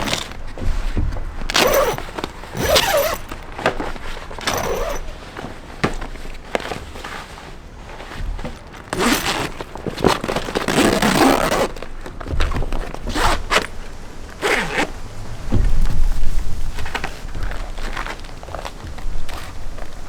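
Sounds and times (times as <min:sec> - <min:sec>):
zipper being pulled: 0:00.0 - 0:00.4, 0:01.5 - 0:03.4, 0:04.4 - 0:05.2, 0:08.9 - 0:11.8
low thumping handling noises: 0:00.0 - 0:06.0.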